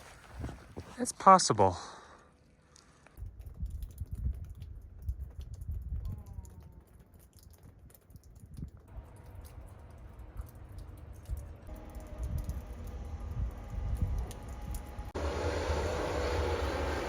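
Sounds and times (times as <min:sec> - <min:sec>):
footsteps crunching in snow: 0:00.0 - 0:01.1
wind on microphone: 0:03.2 - 0:07.0, 0:09.5 - 0:15.2.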